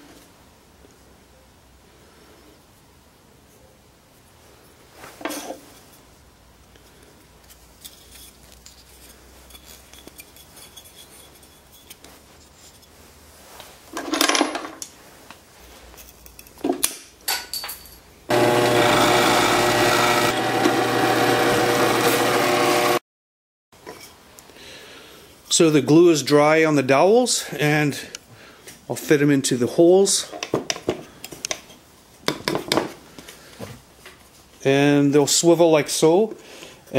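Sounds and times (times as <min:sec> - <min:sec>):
power tool running: 0:18.3 - 0:23.0.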